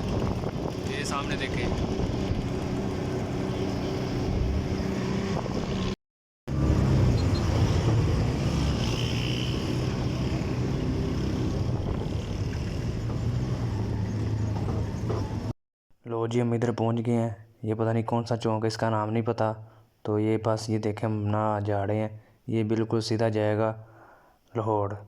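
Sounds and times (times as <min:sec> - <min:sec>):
vehicle engine hum: 0:00.0 - 0:15.6
wind and road noise: 0:00.0 - 0:15.6.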